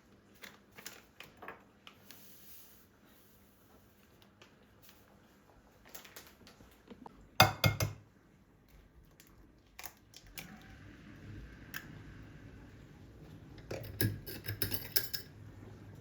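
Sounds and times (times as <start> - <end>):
dishes and utensils clinking: 7.4 - 8.0, 13.6 - 15.4.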